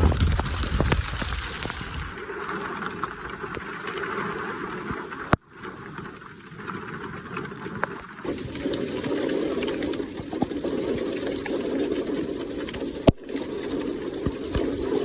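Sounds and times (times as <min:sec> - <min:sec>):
rain falling: 0:00.0 - 0:02.2.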